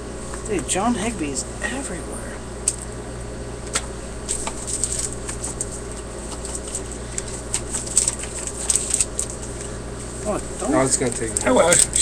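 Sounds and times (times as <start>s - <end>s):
steady low hum: 0.0s - 12.0s
trading cards being flipped: 3.6s - 9.7s.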